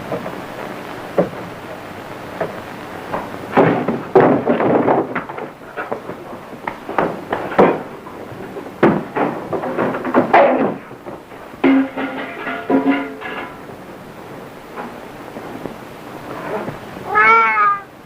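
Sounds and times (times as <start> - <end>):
knocks bangs and thuds: 2.4 - 13.8.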